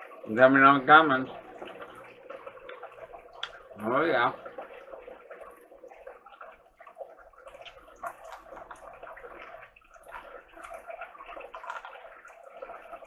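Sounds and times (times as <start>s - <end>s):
wet chewing sounds: 1.4s - 3.8s, 4.4s - 13.0s.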